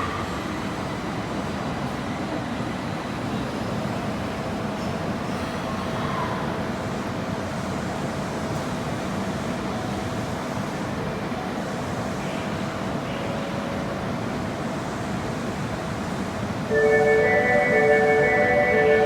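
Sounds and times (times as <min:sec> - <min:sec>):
subway train rumble and hum: 0:00.0 - 0:19.0.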